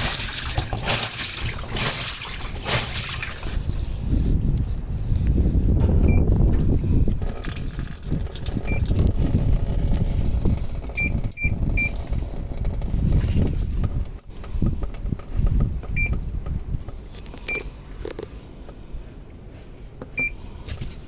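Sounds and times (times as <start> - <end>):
washing machine churning water: 0.0 - 4.6, 7.0 - 14.1.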